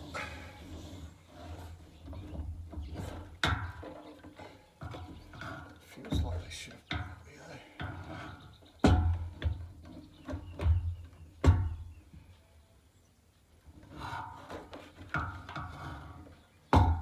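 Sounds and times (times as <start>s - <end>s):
dull heavy knocks and thumps: 4.8s - 12.1s, 16.7s - 17.0s.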